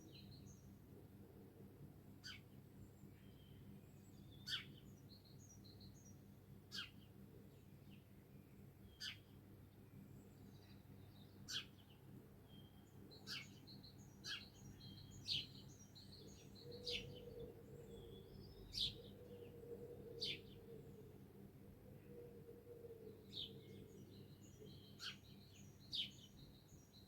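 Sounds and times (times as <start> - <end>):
faint low background noise: 0.0 - 27.0
songbirds chirping: 0.0 - 27.0
birds twittering: 12.6 - 19.5.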